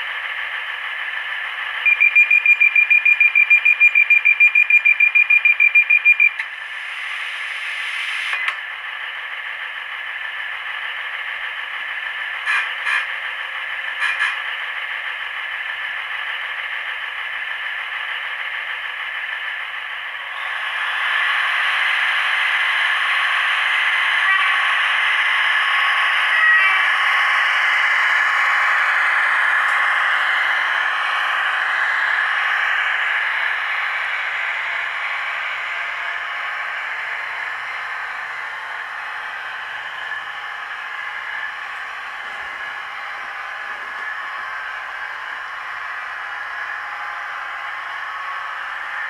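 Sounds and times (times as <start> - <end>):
diesel train engine running: 0.0 - 49.0
short engine bursts: 0.1 - 49.0
rapid high beeping: 1.9 - 6.4
click: 8.3 - 8.6.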